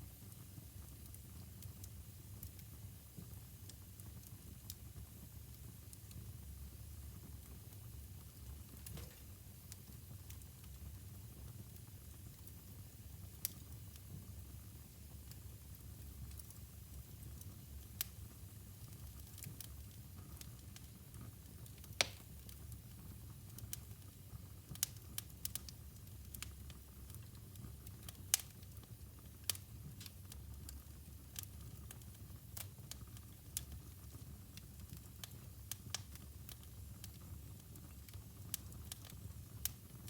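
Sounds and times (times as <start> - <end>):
low steady fire rumble: 0.0 - 40.0
wood fire crackling and popping: 0.1 - 40.0.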